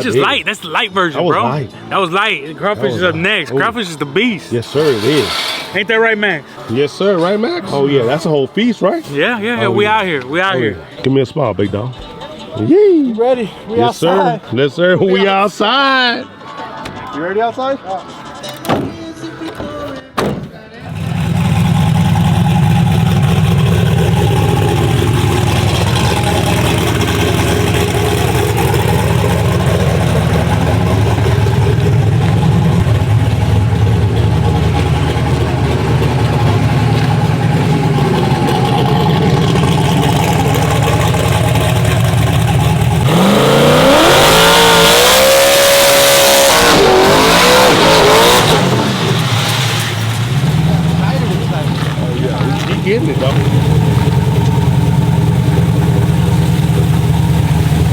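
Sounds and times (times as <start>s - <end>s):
drag truck engine revving: 4.6s - 6.0s, 20.8s - 57.9s.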